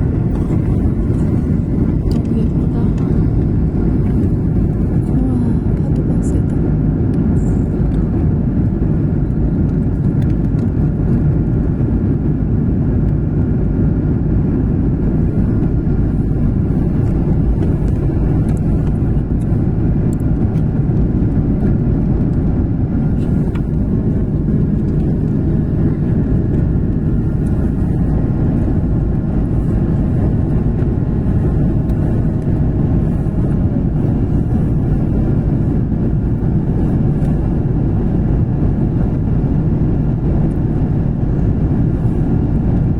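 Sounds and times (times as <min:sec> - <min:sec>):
jet engines rumbling: 0:00.0 - 0:42.9.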